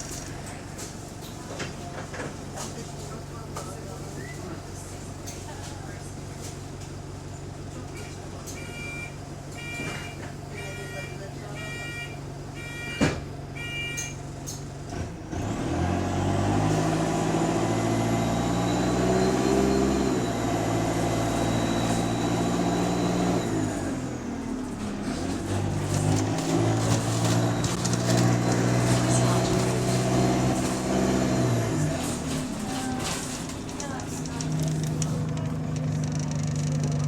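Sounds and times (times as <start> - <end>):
bus engine pulling away: 14.2 - 37.0.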